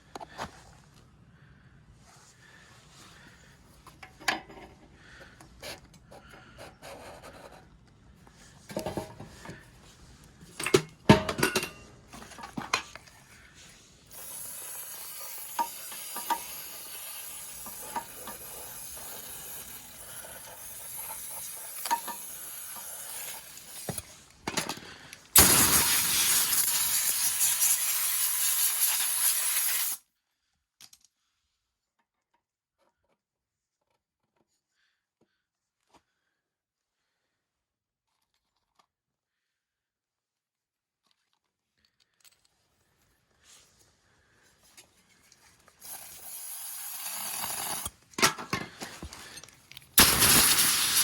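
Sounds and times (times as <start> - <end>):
engine parts clinking and scraping: 8.6 - 9.8, 10.4 - 13.8, 48.1 - 50.0
loud hiss: 14.1 - 24.0, 25.4 - 30.0, 45.8 - 47.9, 50.0 - 51.0
steady hiss: 14.1 - 24.2, 25.4 - 30.0, 45.8 - 47.9, 50.0 - 51.0.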